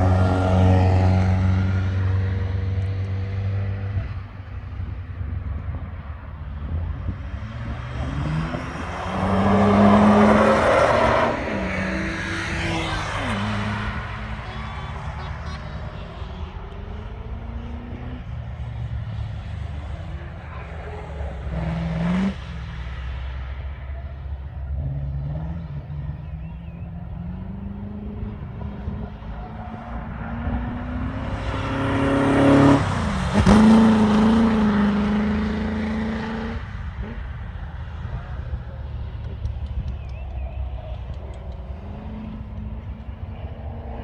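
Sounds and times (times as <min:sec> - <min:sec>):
race car engines: 0:00.0 - 0:44.0
race car passing by: 0:07.0 - 0:23.3, 0:25.1 - 0:37.4.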